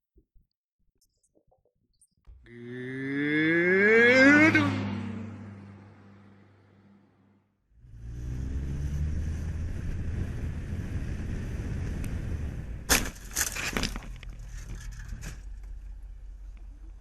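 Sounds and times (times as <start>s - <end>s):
car engine revving: 2.4s - 12.8s
car collision bangs and crunches: 12.9s - 14.2s.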